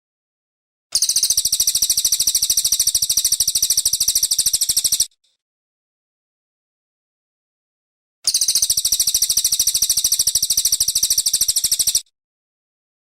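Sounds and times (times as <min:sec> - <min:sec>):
songbird rattling trill: 0:01.0 - 0:05.2, 0:08.3 - 0:12.0.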